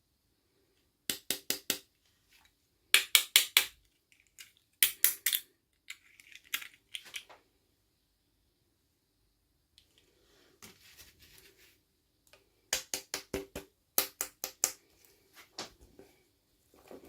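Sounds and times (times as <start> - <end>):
plastic toys clicking and tapping: 3.0 - 7.3
faint plastic rustle: 9.9 - 11.9.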